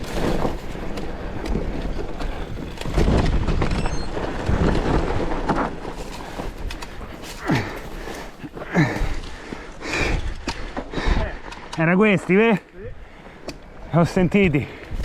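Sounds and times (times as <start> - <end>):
bike tyre rumble: 0.0 - 11.7
bike knocking and rattling: 0.0 - 12.6.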